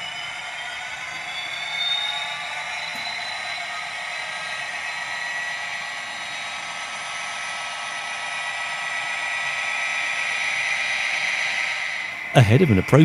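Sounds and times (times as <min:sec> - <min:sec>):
model train diesel engine sound: 0:12.2 - 0:13.0.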